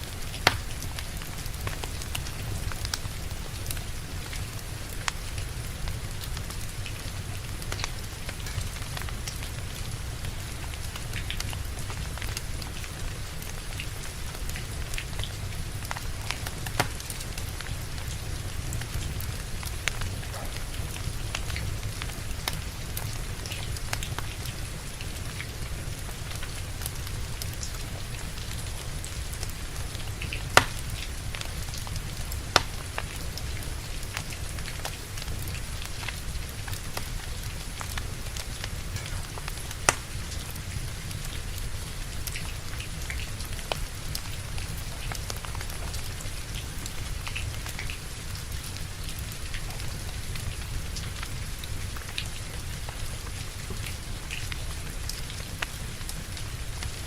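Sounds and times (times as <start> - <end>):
steady rain: 0.0 - 57.0
wood fire crackling: 0.0 - 57.0
sharp pops from burning logs: 0.2 - 4.4, 15.9 - 18.1, 18.8 - 22.6, 29.4 - 33.4, 37.9 - 40.6.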